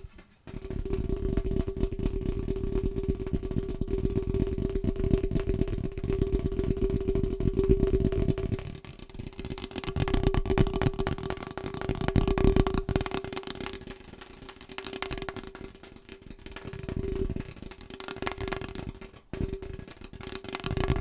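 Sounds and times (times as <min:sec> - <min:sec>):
fast tapping on hard object: 0:00.0 - 0:21.0.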